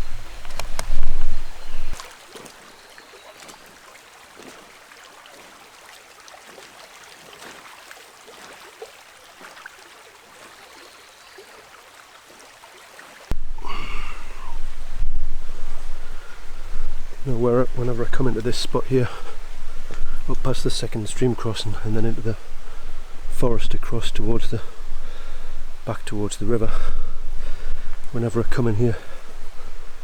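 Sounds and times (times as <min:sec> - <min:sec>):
wind on microphone: 0:00.0 - 0:02.0, 0:13.3 - 0:30.0
stream trickling: 0:00.0 - 0:30.0
short pitched call: 0:13.3 - 0:15.1.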